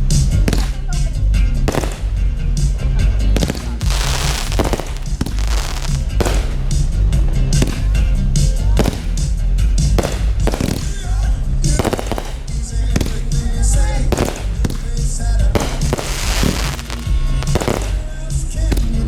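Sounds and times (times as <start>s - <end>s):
music playing: 0.0s - 19.0s
firework shells bursting: 1.7s - 2.3s, 3.4s - 6.9s, 8.8s - 9.3s, 10.0s - 13.5s, 14.1s - 18.2s
firework crackling: 1.7s - 2.4s, 3.4s - 6.9s, 8.8s - 9.3s, 10.0s - 18.4s.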